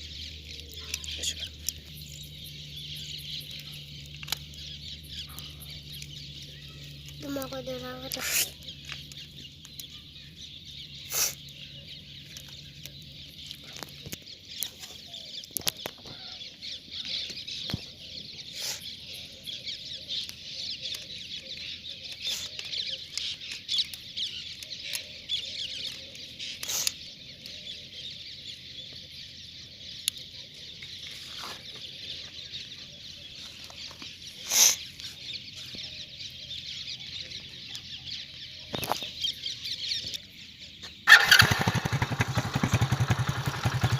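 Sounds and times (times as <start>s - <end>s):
chickens clucking and chirping: 0.0s - 19.4s.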